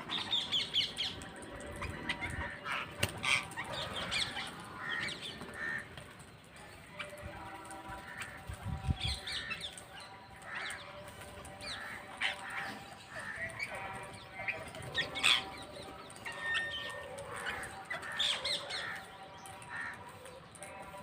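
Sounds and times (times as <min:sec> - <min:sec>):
parrots squawking: 0:01.7 - 0:05.9, 0:10.4 - 0:20.0.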